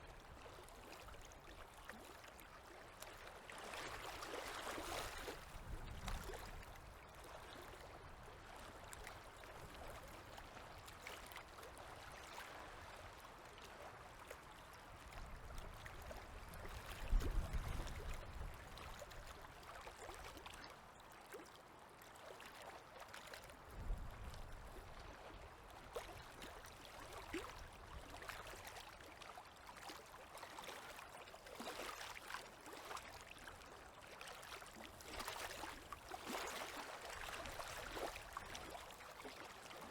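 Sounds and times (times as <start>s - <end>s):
river water lapping and trickling: 0.0s - 39.9s
small splashes: 34.4s - 39.9s.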